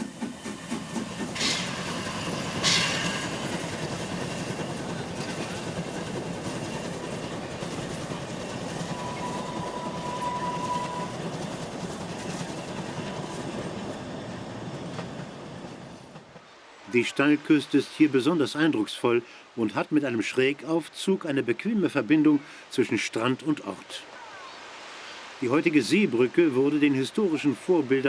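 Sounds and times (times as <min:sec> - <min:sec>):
steam train rolling: 0:00.0 - 0:18.0.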